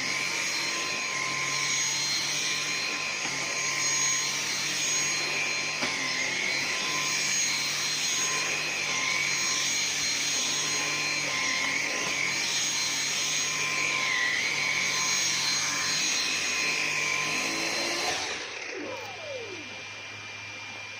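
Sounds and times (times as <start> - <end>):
vacuum cleaner running: 0.0 - 20.9
motor winding down: 0.1 - 20.9.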